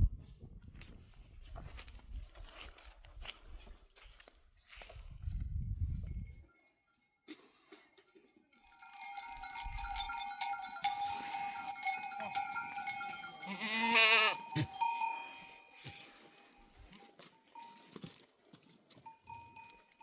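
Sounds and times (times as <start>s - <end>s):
goat bells clanking: 5.8s - 20.0s
goat bleating: 12.0s - 15.0s.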